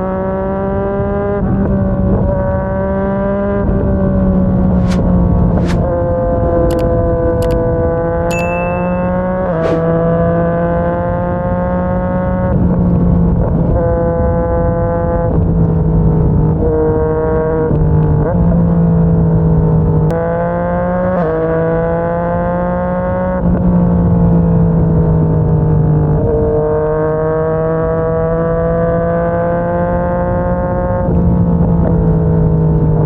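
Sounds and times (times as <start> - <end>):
motorcycle engine shifting gears: 3.3 - 8.2.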